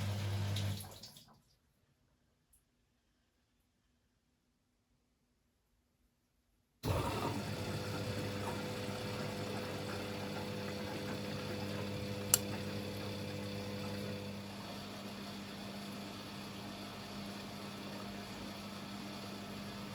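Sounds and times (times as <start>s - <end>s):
washing machine humming: 0.0s - 1.2s, 6.8s - 19.9s.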